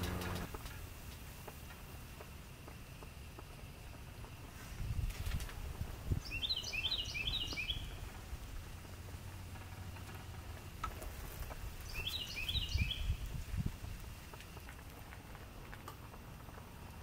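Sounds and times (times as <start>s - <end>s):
low rumbling: 0.0s - 0.6s.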